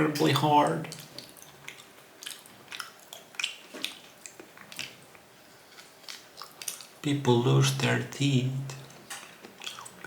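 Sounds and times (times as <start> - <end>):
wet chewing and lip-smacking: 0.2 - 7.0, 9.1 - 10.0.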